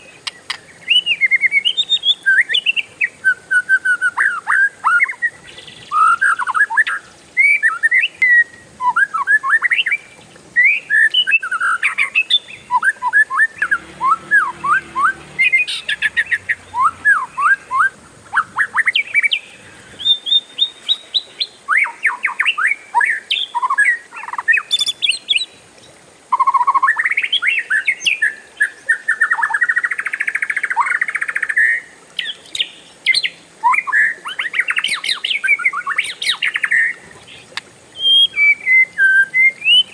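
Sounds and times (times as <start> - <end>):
bird singing whistled trills: 0.0 - 25.6, 38.0 - 39.9.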